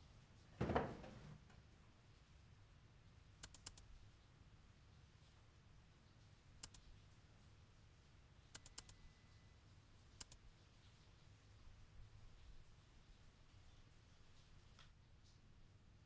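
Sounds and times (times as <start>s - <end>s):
typing on laptop keyboard: 3.4s - 3.9s, 6.6s - 6.8s, 8.5s - 9.1s, 10.2s - 10.4s.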